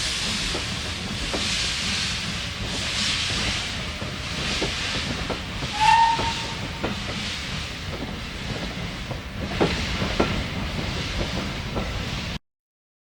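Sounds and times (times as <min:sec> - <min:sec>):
steam hissing: 0:00.0 - 0:12.4
steam whistle toot: 0:05.7 - 0:06.7.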